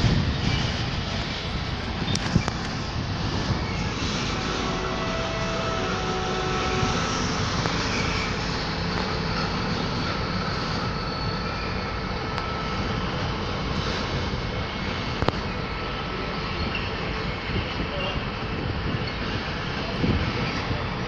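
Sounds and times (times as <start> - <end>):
wheels rumbling on rail: 0.0 - 21.0
faint wheel squeals: 3.5 - 18.3.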